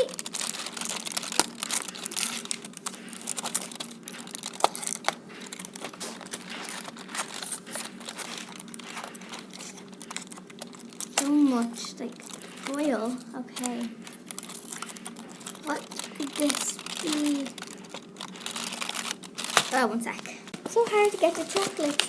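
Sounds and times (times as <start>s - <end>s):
foil wrapper crinkling and tearing: 0.0s - 22.0s
steady low hum: 0.0s - 22.0s.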